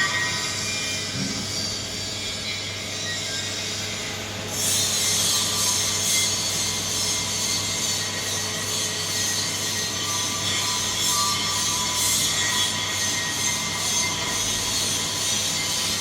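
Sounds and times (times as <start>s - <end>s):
welder electrical hum: 0.0s - 16.0s.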